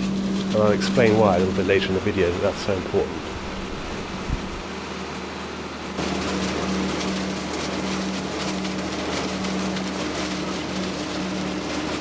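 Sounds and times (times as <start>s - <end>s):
harvester engine drone: 0.0s - 12.0s.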